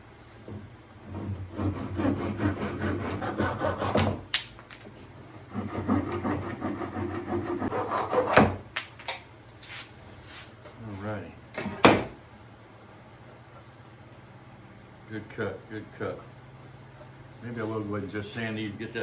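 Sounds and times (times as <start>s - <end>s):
hand saw cutting wood: 1.0s - 4.2s, 5.5s - 8.6s.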